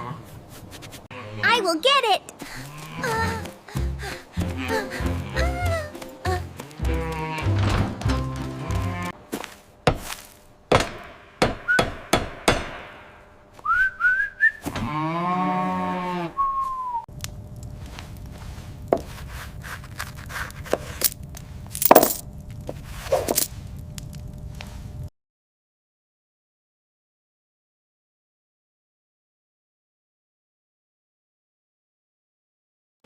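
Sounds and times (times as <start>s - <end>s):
short rising whistles: 13.6s - 14.7s, 16.4s - 17.1s.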